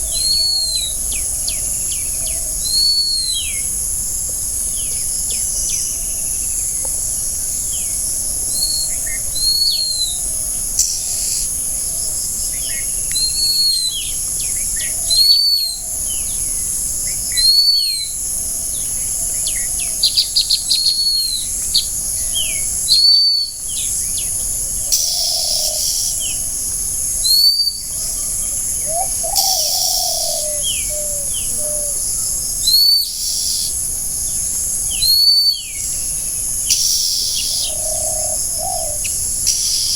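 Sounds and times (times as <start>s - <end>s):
high-pitched insect drone: 13.4s - 39.9s
birds chirping: 27.7s - 32.0s.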